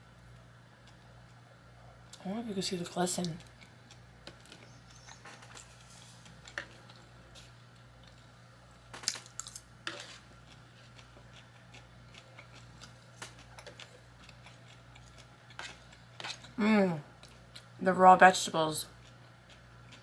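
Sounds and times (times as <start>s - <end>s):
crunching bites and chewing: 3.4s - 16.6s.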